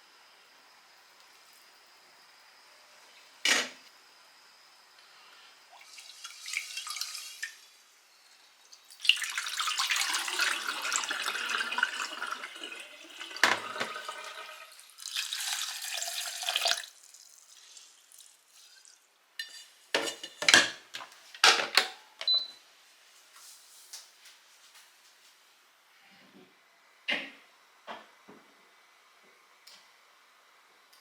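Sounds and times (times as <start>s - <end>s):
tap running into sink: 13.2s - 14.2s
dishes clinking: 19.4s - 20.8s.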